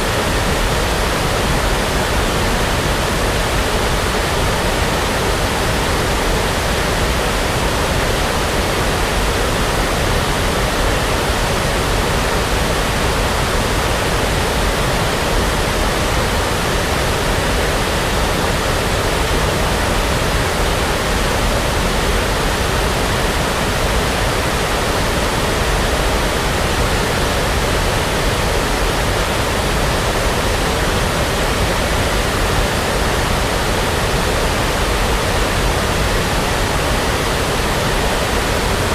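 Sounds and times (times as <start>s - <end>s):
brown noise hiss: 0.0s - 38.9s.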